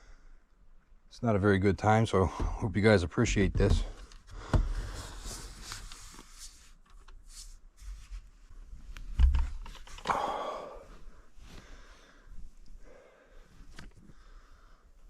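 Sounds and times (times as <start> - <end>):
knocks and thumps: 2.3 - 2.6, 3.3 - 5.0.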